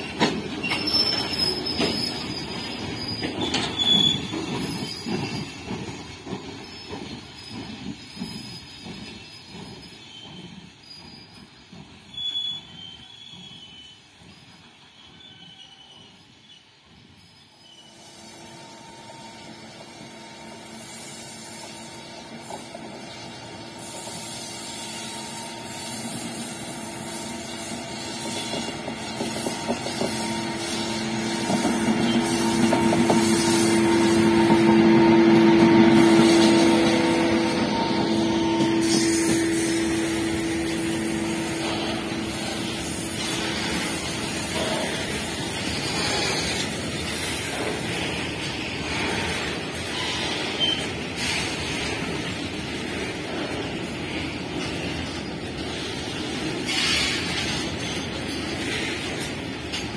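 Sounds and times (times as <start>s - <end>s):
wagons rumbling and clattering: 0.0s - 13.0s
electric locomotive humming: 17.9s - 59.9s.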